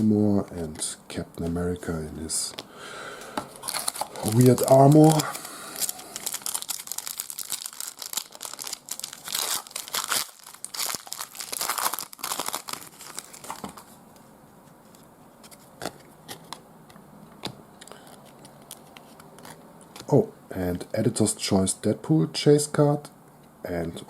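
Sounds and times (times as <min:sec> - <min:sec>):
wrapper crinkling and tearing: 0:03.6 - 0:13.9.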